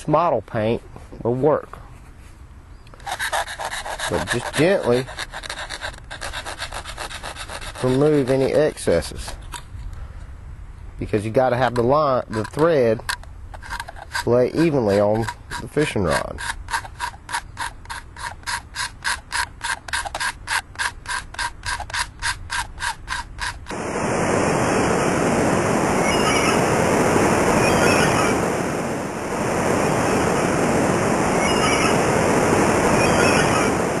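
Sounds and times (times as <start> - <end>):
blade scraping a fishing rod: 2.0 - 9.7, 11.6 - 23.8
loud steady hiss: 23.6 - 34.0.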